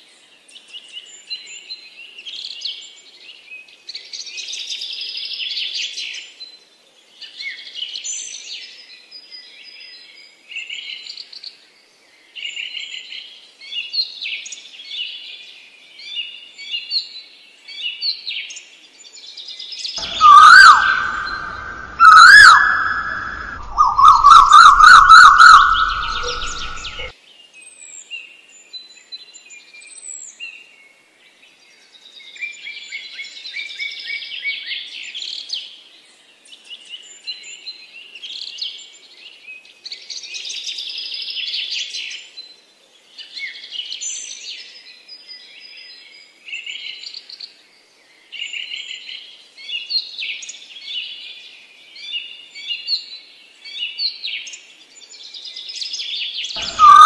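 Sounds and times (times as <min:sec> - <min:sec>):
songbirds chirping and singing: 0:07.2 - 0:27.2, 0:43.1 - 0:57.0.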